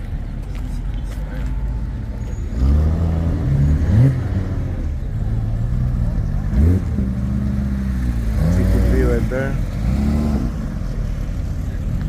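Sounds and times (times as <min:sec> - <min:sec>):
short engine revs: 0:06.4 - 0:10.8.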